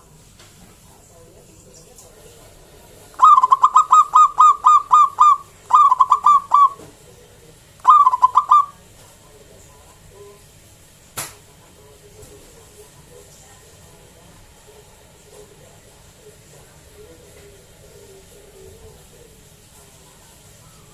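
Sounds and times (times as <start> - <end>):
dove cooing: 3.2 - 6.9, 7.8 - 8.9, 20.0 - 20.9.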